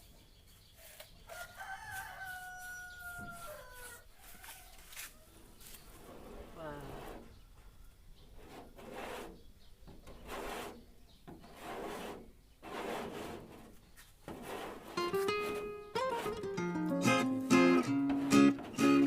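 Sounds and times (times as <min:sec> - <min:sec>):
hand scraping car body panel: 0:08.4 - 0:16.5
guitar music: 0:15.0 - 0:19.0.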